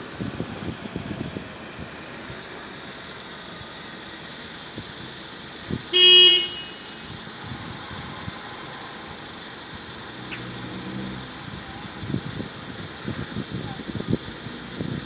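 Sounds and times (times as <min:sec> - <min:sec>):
city traffic: 0:00.0 - 0:15.0
vehicle horn toot: 0:05.9 - 0:07.2.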